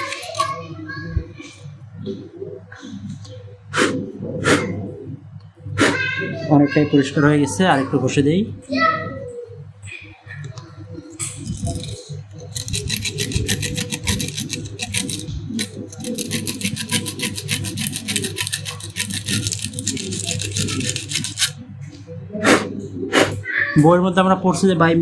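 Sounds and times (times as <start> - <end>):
sandpaper rubbing on metal contacts: 0.0 - 0.5, 11.4 - 21.6.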